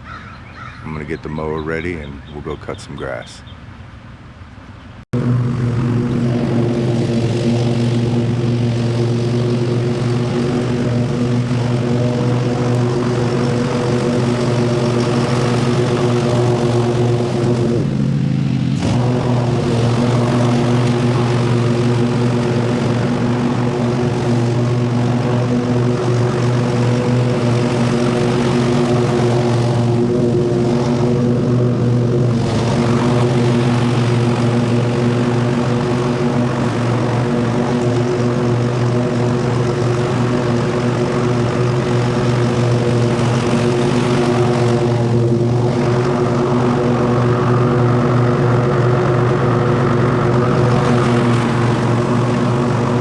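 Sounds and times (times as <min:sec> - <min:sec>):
lawn mower engine running: 0:00.0 - 0:53.0.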